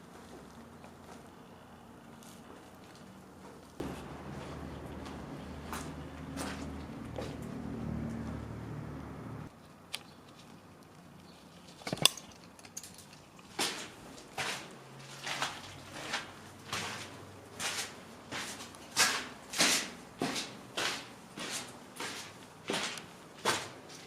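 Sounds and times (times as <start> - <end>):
footsteps walking: 0.0 - 1.3, 2.0 - 8.4, 13.3 - 24.0.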